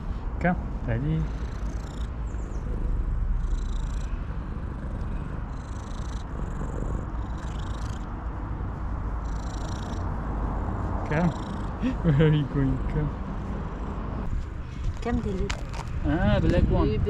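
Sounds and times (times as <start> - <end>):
cat purring: 0.9 - 11.8.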